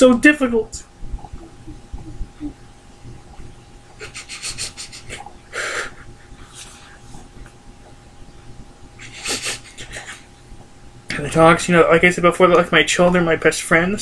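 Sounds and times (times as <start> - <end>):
low steady hum: 0.0 - 14.0
heavy breathing and sniffing: 4.0 - 7.4, 9.0 - 10.3.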